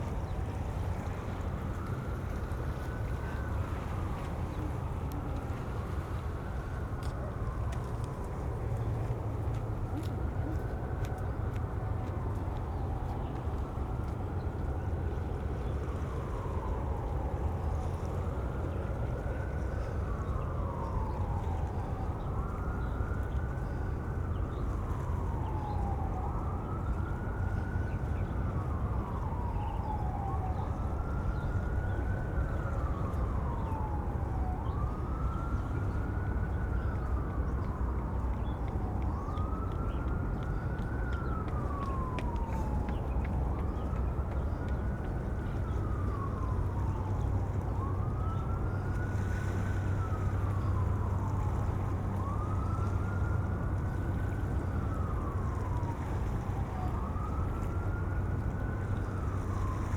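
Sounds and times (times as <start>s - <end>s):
emergency siren wailing: 0.0s - 59.9s.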